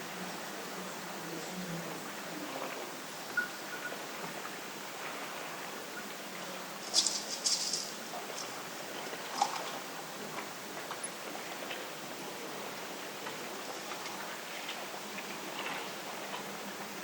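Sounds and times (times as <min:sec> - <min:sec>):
scratchy rattles and rustles: 0:06.8 - 0:09.8.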